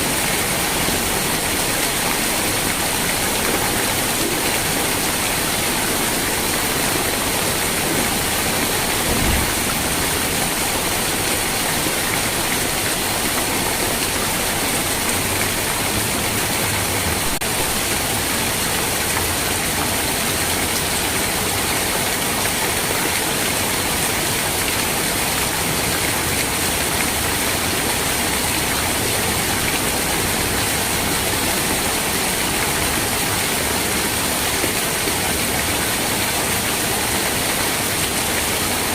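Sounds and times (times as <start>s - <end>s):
steady rain: 0.0s - 38.9s
low thump: 9.0s - 9.8s.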